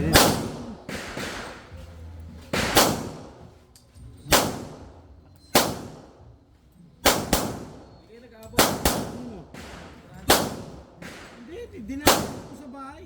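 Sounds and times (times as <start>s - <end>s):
sharp explosive bangs echoing: 0.0s - 1.8s, 2.5s - 3.5s, 4.3s - 6.2s, 7.0s - 8.0s, 8.6s - 12.7s.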